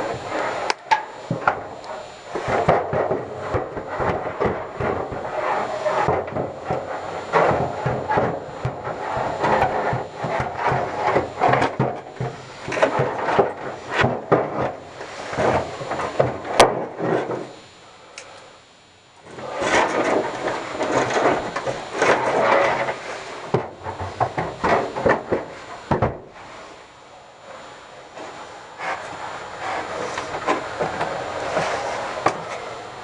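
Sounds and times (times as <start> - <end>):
scraping and rubbing: 1.9 - 16.4, 28.1 - 32.8.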